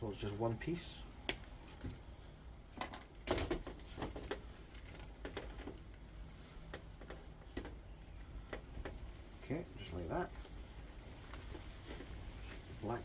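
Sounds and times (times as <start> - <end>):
hands clicking and rustling: 1.2 - 2.2, 2.8 - 9.1.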